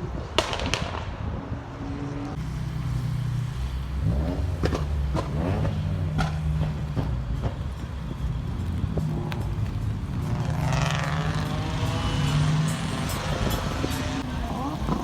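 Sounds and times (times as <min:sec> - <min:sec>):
car engines running: 0:01.6 - 0:15.0
engine revving: 0:01.8 - 0:07.5, 0:08.8 - 0:15.0.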